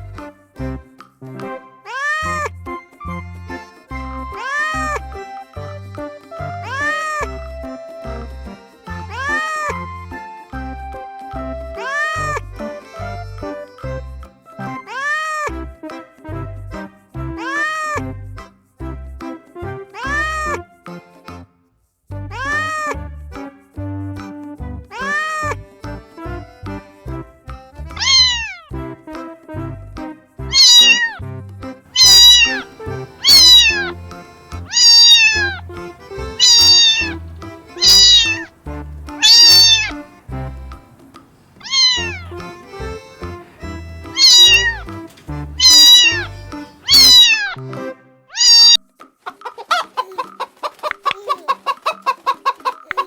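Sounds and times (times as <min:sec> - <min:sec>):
background music: 0:00.0 - 0:48.6
cat meowing: 0:09.1 - 0:09.7, 0:28.0 - 0:28.6, 0:30.5 - 0:31.2, 0:32.0 - 0:47.6, 0:48.4 - 0:48.8
chicken clucking: 0:28.0 - 0:28.5, 0:30.6 - 0:31.1, 0:32.0 - 0:47.6, 0:49.3 - 0:53.0.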